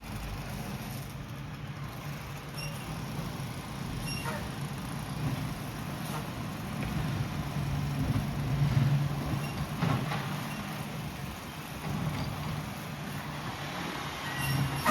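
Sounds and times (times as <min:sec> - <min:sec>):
garbage truck engine running: 0:00.0 - 0:14.9
brief high squeaks: 0:02.6 - 0:02.8, 0:04.0 - 0:04.5, 0:14.2 - 0:14.9.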